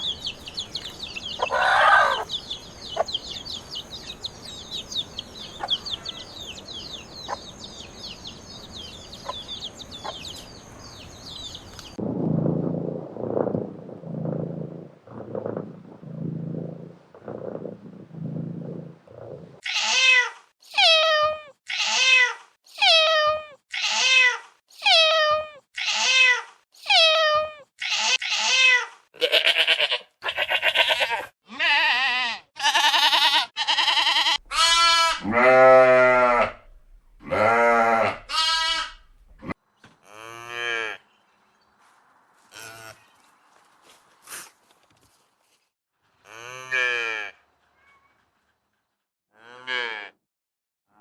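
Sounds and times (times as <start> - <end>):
wavering bleats: 27.8 - 41.0
cow mooing: 34.4 - 39.5, 49.4 - 50.2.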